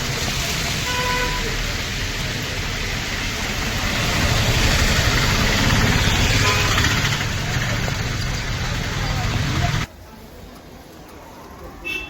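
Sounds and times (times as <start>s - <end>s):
vehicle engines running: 1.4s - 9.9s.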